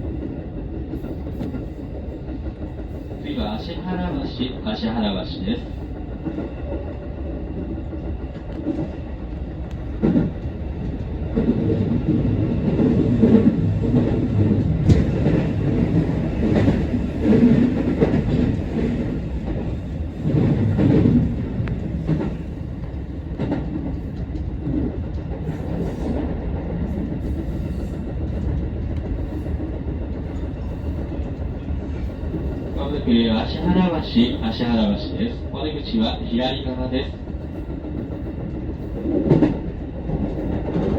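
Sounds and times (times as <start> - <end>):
train wheels rumbling on rail: 0.0 - 40.9
sharp rail clicks: 12.8 - 19.0.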